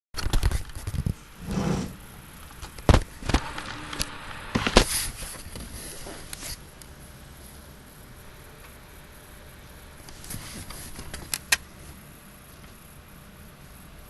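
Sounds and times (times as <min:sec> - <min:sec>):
short low hum: 0:03.2 - 0:05.3.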